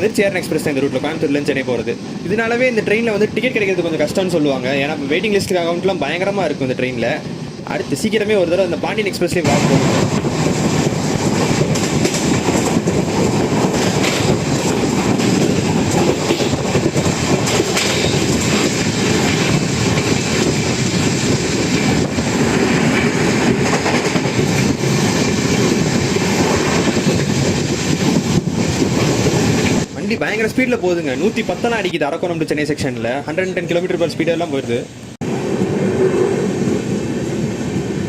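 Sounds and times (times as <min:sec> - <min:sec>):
train wheels rumbling on rails: 0:00.0 - 0:38.0
clatter over rail joints: 0:09.4 - 0:30.0.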